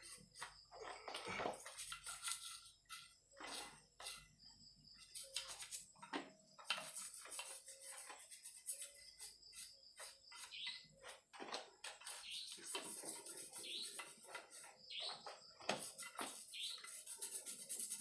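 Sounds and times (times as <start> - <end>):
toothbrush scrubbing metal: 0.0 - 4.4, 5.0 - 11.2, 11.9 - 18.0
bird chirping: 6.9 - 11.2, 11.8 - 17.7.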